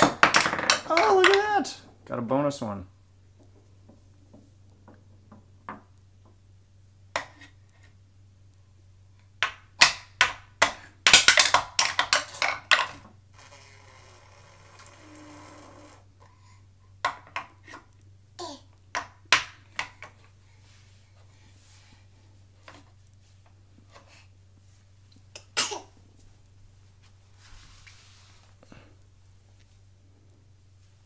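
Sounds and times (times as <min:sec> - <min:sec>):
toy hammer knocking: 0:00.0 - 0:01.4
balls rattling: 0:00.0 - 0:02.1, 0:09.4 - 0:13.6.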